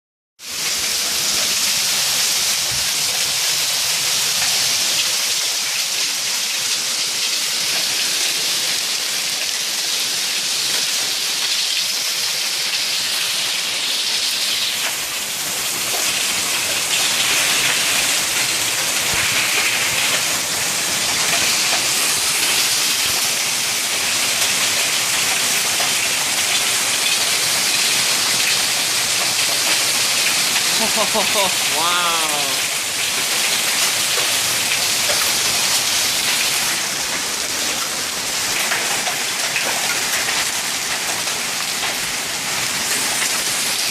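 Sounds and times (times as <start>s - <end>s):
heavy rain and hail: 0.4s - 43.9s.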